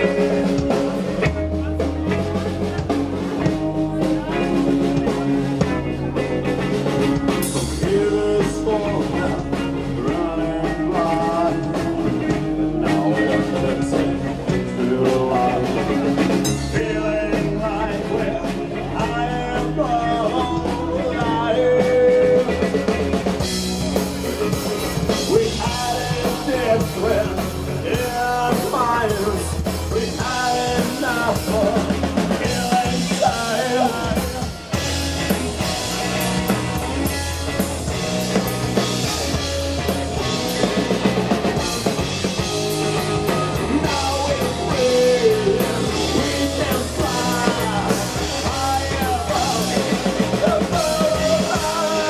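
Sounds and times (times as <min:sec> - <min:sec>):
drum kit: 0:00.0 - 0:52.0
melodic lead line: 0:00.0 - 0:52.0
rock band playing: 0:00.0 - 0:52.0.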